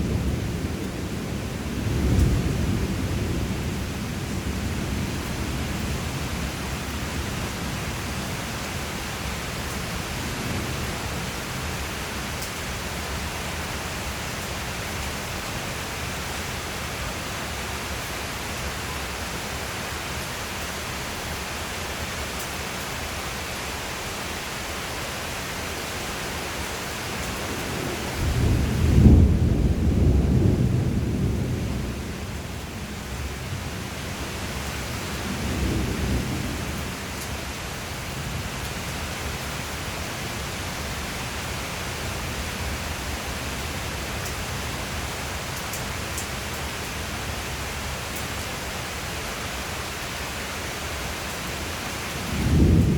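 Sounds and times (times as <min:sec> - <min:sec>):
steady rain: 0:00.0 - 0:52.9
thunder rumbling: 0:27.5 - 0:33.8, 0:52.2 - 0:52.9.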